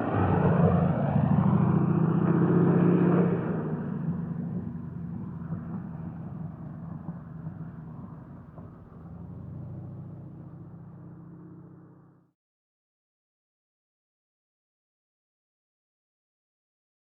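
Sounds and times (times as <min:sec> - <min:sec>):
propeller plane engine droning: 0:00.0 - 0:12.2.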